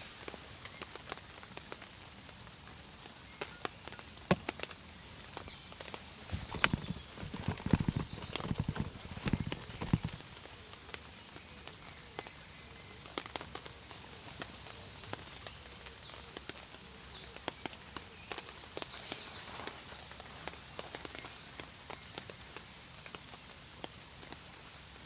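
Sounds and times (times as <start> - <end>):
rain pattering: 0.0 - 25.0
low knocks and thumps: 6.3 - 10.3.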